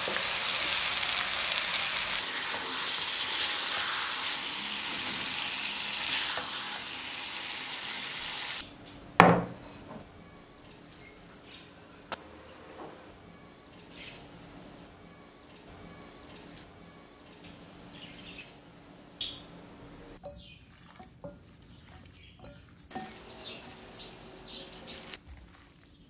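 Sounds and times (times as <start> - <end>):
chicken sizzling in a pan: 0.0 - 8.6, 22.9 - 25.2
wooden spatula stirring: 20.2 - 26.0.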